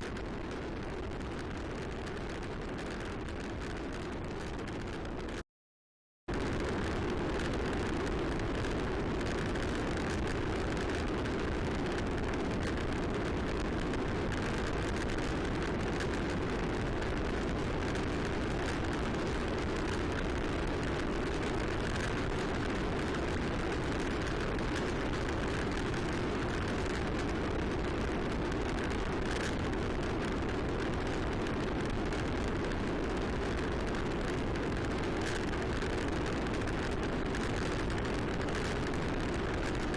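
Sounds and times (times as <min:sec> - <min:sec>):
wind rush on microphone: 0:00.0 - 0:05.4, 0:06.3 - 0:39.9.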